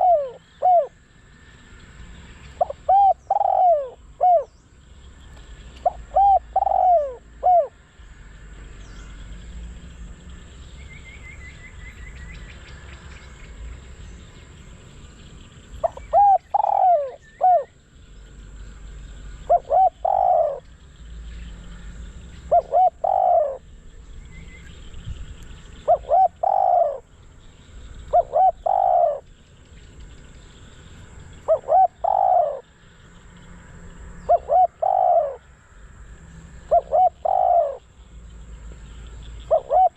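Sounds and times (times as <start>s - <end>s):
dove cooing: 0.0s - 1.0s, 2.6s - 4.6s, 5.8s - 7.8s, 15.7s - 17.8s, 19.1s - 20.9s, 21.5s - 23.7s, 25.8s - 27.2s, 28.0s - 29.4s, 31.4s - 32.8s, 34.2s - 35.5s, 36.6s - 37.9s, 39.4s - 39.9s
small bird chirping: 0.0s - 7.8s, 8.7s - 35.5s, 36.3s - 39.9s.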